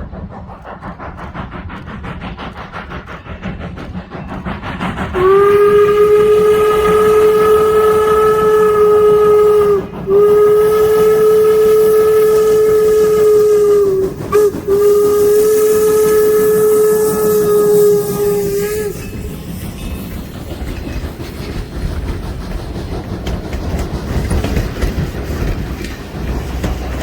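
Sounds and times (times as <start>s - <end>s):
steam locomotive whistle blasts: 5.2s - 19.7s.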